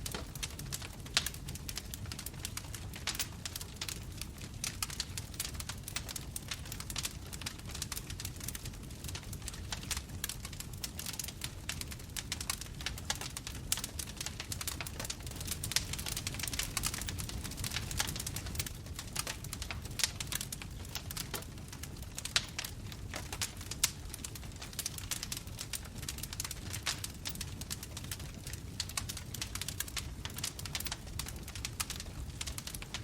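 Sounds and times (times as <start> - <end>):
bonfire crackles and pops: 0.0 - 33.0
low rumble of flames: 0.0 - 33.0.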